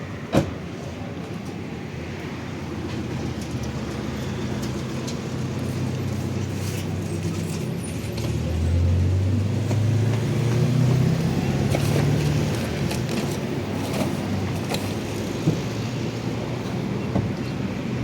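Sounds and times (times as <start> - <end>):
car engine drone: 4.2 - 18.0.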